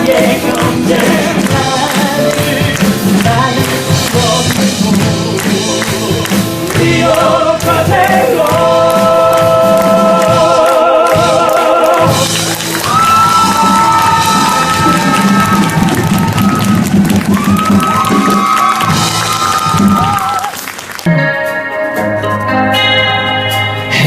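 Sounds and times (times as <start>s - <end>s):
male voices singing in harmony: 0.0s - 12.3s
instrumental accompaniment: 0.0s - 24.0s.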